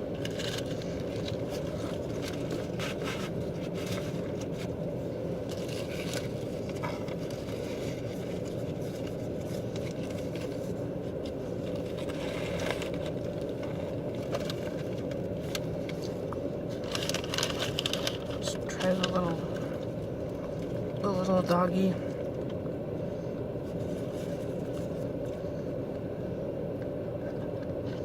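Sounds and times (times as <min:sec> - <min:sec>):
food wrapper crackling: 0:00.1 - 0:04.7, 0:05.4 - 0:21.0.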